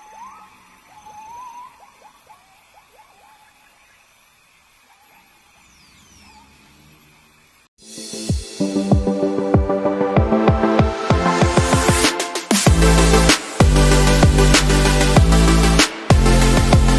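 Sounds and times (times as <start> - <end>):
small animal chirping: 0.0 - 7.5.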